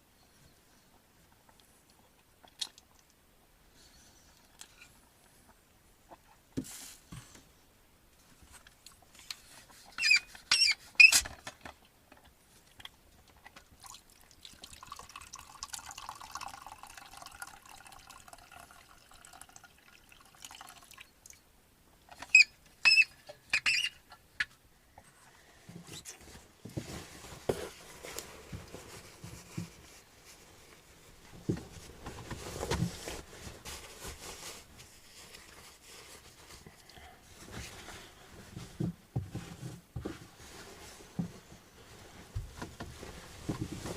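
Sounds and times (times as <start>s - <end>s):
rustling and shuffling: 3.7s - 13.7s, 24.5s - 43.9s
hot drink pouring into mug: 13.8s - 21.0s.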